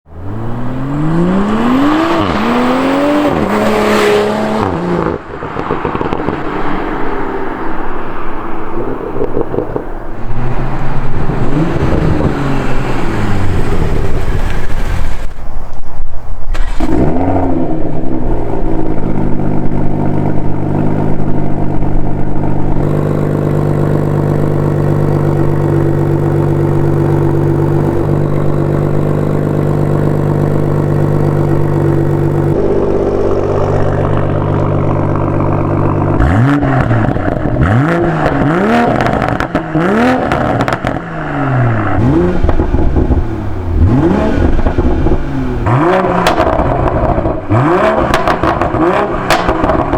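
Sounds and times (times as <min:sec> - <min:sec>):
car engine revving: 0:00.1 - 0:08.0, 0:08.6 - 0:15.3, 0:16.5 - 0:49.9
car engine idling: 0:18.0 - 0:49.9.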